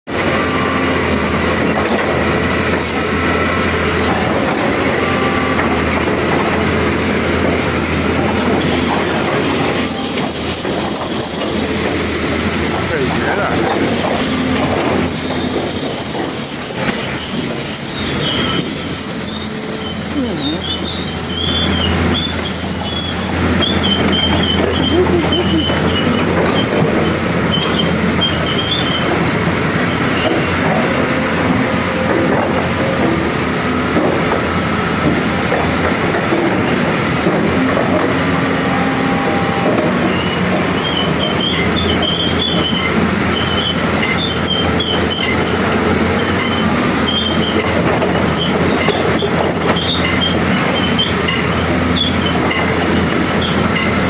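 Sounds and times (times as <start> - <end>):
excavator diesel engine drone: 0.0 - 54.0
metal on metal squeals: 8.6 - 29.2, 37.5 - 45.6, 46.2 - 54.0.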